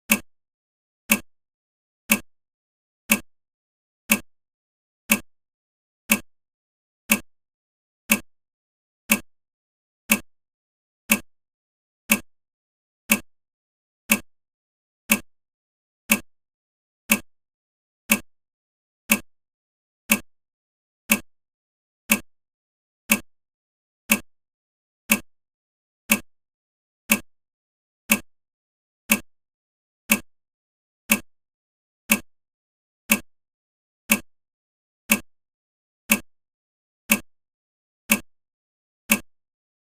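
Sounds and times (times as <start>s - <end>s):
sharp ticking click: 0.1s - 0.3s, 1.1s - 1.3s, 2.1s - 2.3s, 3.1s - 3.3s, 4.1s - 4.3s, 5.1s - 5.3s, 6.1s - 6.3s, 7.1s - 7.3s, 8.1s - 8.3s, 9.1s - 9.3s, 10.1s - 10.3s, 11.1s - 11.3s, 12.1s - 12.3s, 13.1s - 13.3s, 14.1s - 14.3s, 15.1s - 15.3s, 16.1s - 16.3s, 17.1s - 17.3s, 18.1s - 18.3s, 19.1s - 19.3s, 20.1s - 20.3s, 21.1s - 21.3s, 22.1s - 22.3s, 23.1s - 23.3s, 24.1s - 24.3s, 25.1s - 25.3s, 26.1s - 26.3s, 27.1s - 27.3s, 28.1s - 28.3s, 29.1s - 29.3s, 30.1s - 30.3s, 31.1s - 31.3s, 32.1s - 32.3s, 33.1s - 33.3s, 34.1s - 34.3s, 35.1s - 35.3s, 36.1s - 36.3s, 37.1s - 37.3s, 38.1s - 38.3s, 39.1s - 39.3s.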